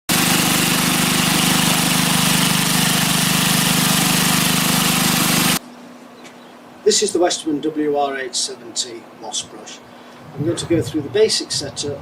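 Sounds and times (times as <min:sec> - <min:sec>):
four-stroke engine running: 0:00.1 - 0:05.6.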